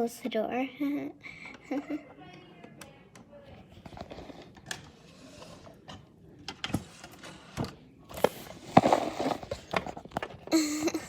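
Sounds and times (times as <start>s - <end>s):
rustling scrape: 3.7s - 5.9s, 6.7s - 10.3s.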